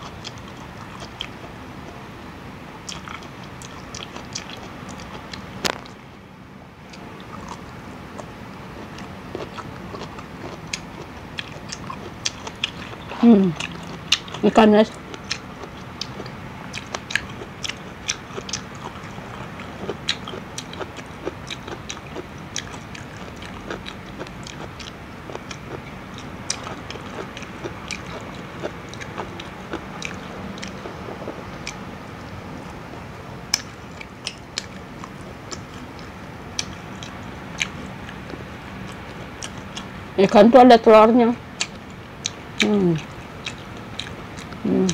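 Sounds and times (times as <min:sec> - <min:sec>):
steady low hum: 0:00.0 - 0:44.9
chewing and biting fried fish: 0:02.9 - 0:06.0, 0:07.0 - 0:31.8, 0:33.5 - 0:40.0, 0:41.5 - 0:44.9
crisp crust clicks: 0:05.6 - 0:06.0.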